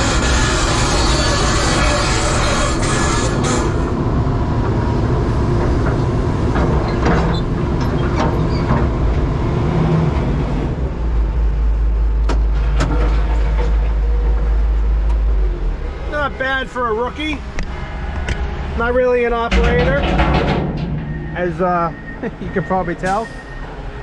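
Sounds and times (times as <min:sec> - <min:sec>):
diesel engine rumbling: 0:00.0 - 0:24.0
sharp knocks: 0:19.5 - 0:22.2.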